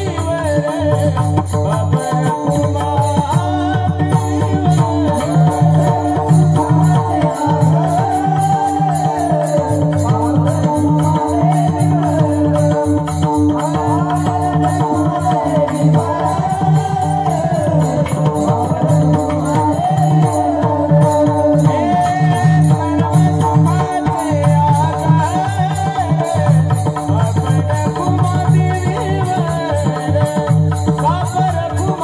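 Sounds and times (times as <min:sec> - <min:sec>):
percussion strokes: 0:00.0 - 0:32.0
person singing devotional melody: 0:00.0 - 0:32.0.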